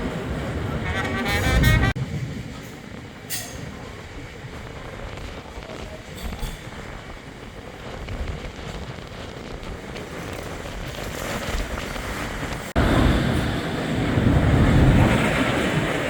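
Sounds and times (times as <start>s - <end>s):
vehicle rumbling: 0.0s - 11.0s
wind on microphone: 0.0s - 16.0s.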